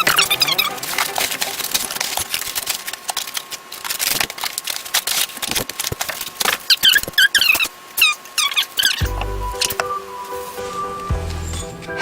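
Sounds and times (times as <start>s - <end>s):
styrofoam rustling and clicks: 1.0s - 7.8s.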